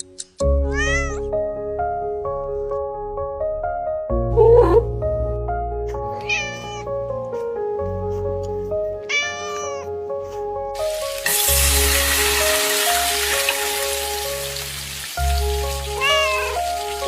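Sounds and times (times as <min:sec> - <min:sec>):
background music: 0:00.0 - 0:17.0
cat meowing: 0:00.6 - 0:01.3, 0:06.0 - 0:07.0, 0:09.0 - 0:10.0, 0:15.9 - 0:16.7.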